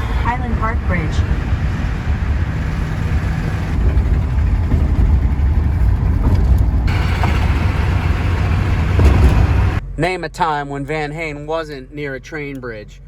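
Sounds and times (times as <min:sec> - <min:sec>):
road and wind hiss: 0:00.0 - 0:09.8
van engine and tyres rumbling: 0:00.0 - 0:10.0.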